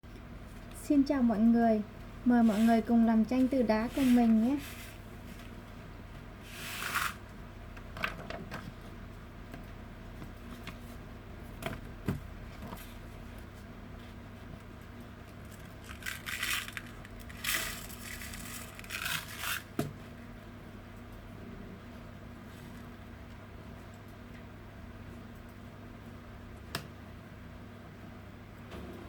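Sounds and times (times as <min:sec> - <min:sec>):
low electrical hum: 0:00.0 - 0:29.0
craft materials scraping and rustling: 0:03.8 - 0:05.4, 0:06.5 - 0:07.2.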